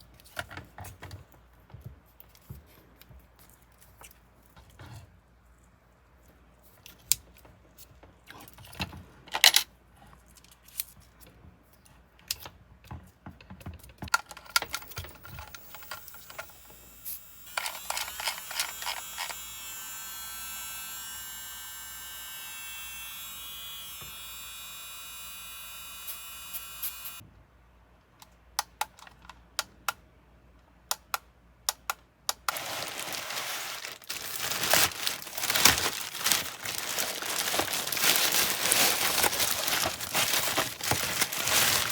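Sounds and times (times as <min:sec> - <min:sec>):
plastic items clicking and tapping: 0:12.9 - 0:16.5, 0:17.6 - 0:19.4, 0:30.9 - 0:41.9
small electric motor whining: 0:15.3 - 0:27.2
packaging crinkling: 0:17.6 - 0:19.3, 0:32.5 - 0:41.9.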